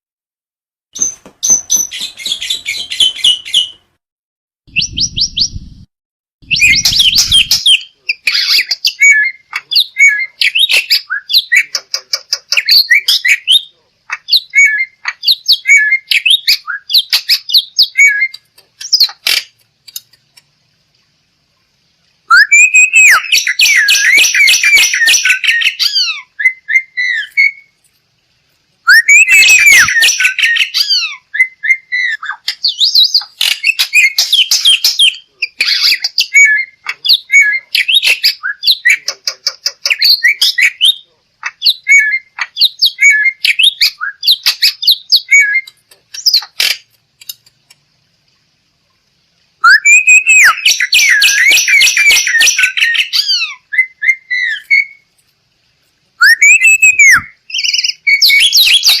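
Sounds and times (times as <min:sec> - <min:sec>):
myna chattering and whistling: 0:06.4 - 0:20.1, 0:28.9 - 0:46.8, 0:49.6 - 0:55.0, 0:56.2 - 0:59.0.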